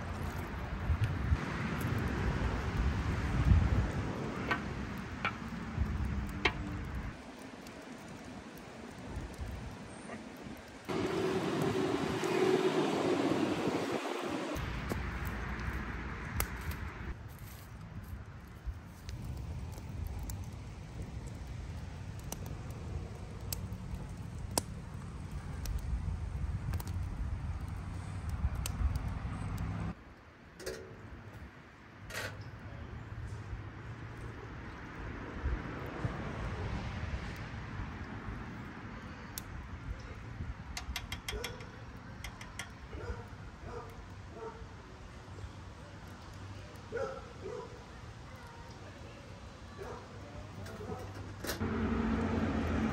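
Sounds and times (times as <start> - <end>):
sharp popping of fire: 0.0 - 30.0
campfire wood crackling: 0.0 - 52.9
low rumbling outdoor noise: 0.0 - 52.9.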